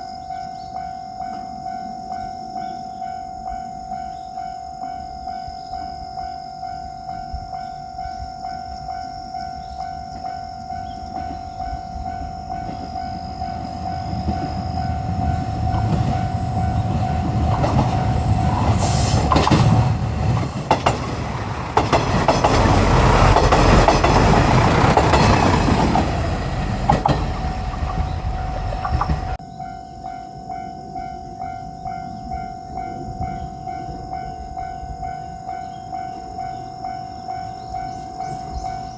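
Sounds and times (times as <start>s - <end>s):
level crossing warning bell: 0.0s - 38.9s
diesel train rumble: 10.6s - 29.4s
train wheels clattering over rails: 10.8s - 29.4s.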